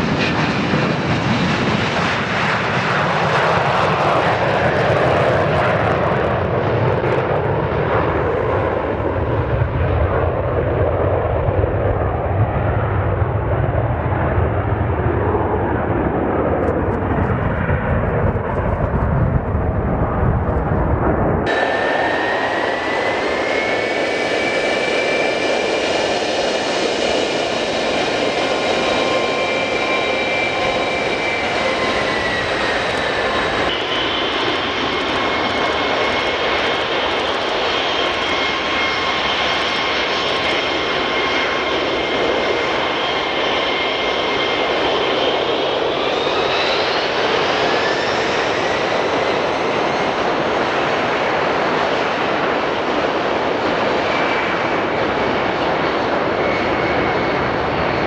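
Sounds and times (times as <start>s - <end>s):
jet engines roaring and whining: 0.0s - 58.0s.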